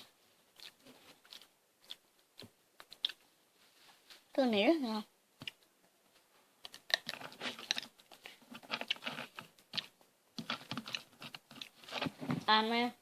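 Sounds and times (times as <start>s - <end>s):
person chewing crunchy snack: 0.5s - 3.2s, 6.6s - 12.1s.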